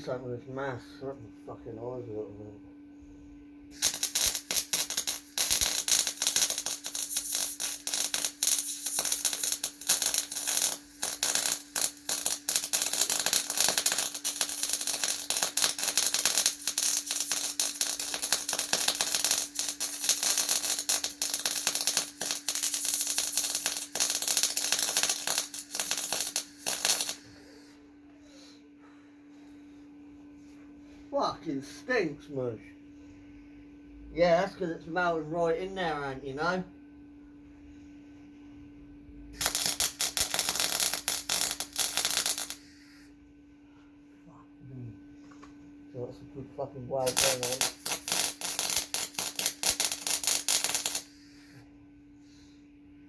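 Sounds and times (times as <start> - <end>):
welding arc crackling: 3.7 - 27.3, 39.4 - 42.7, 47.0 - 51.2.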